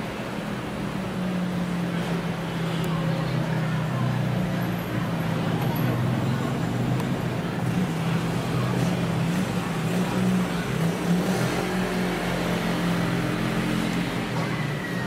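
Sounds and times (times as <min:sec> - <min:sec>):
traffic engine hum: 0:00.0 - 0:15.0.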